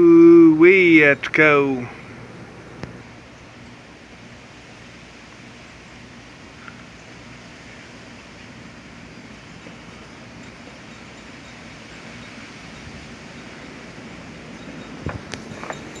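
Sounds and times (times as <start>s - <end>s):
strong wind blowing snow: 11.8s - 16.0s.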